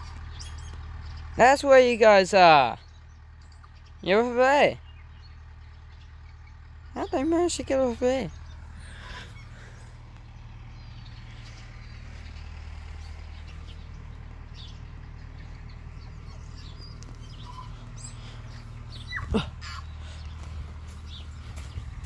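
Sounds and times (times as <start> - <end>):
birds chirping: 0.0 - 22.0
low rumble: 8.3 - 22.0.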